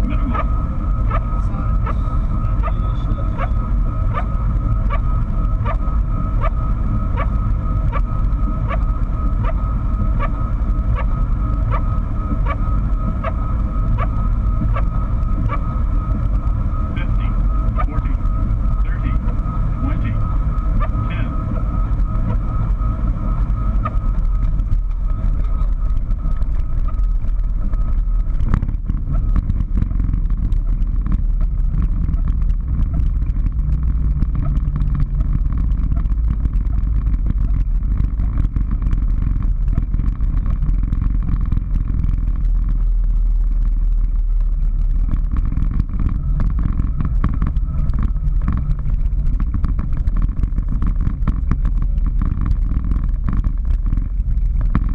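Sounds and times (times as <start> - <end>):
cockpit airflow and engine rumble: 0.0 - 54.9.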